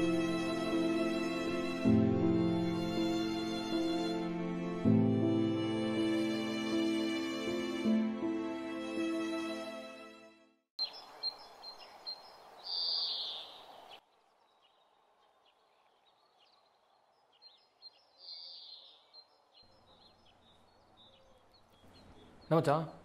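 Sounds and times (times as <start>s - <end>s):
outdoor background hiss: 10.8s - 23.0s
small birds chirping and twittering: 10.8s - 23.0s.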